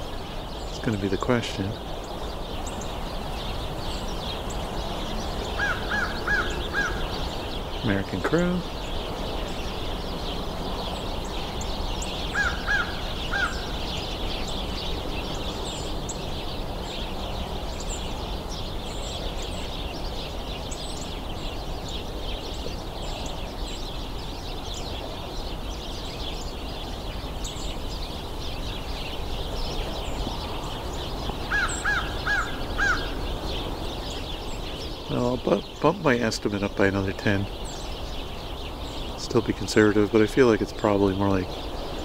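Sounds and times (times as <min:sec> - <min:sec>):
flock of birds chattering: 0:00.0 - 0:42.0
crow cawing: 0:05.5 - 0:07.5, 0:12.3 - 0:14.0, 0:31.5 - 0:33.3.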